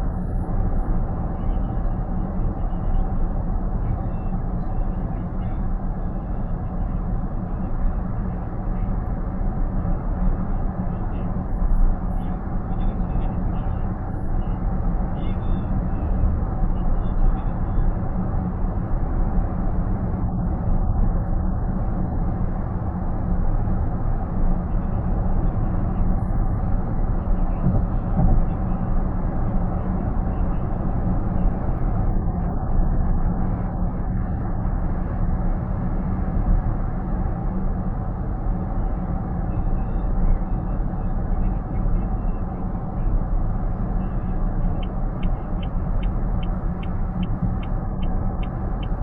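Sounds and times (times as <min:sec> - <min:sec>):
road and tyre noise: 0:00.0 - 0:49.0.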